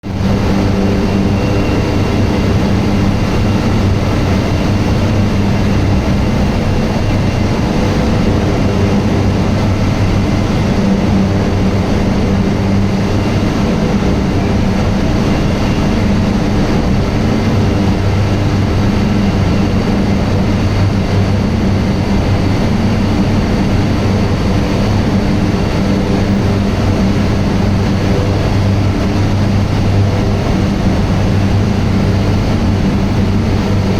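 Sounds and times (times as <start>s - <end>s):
industrial machinery droning: 0.0s - 33.9s.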